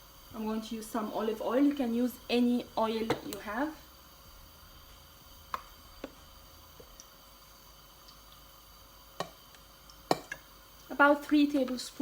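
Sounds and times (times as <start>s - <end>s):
kitchenware clicks and taps: 10.1s - 10.5s.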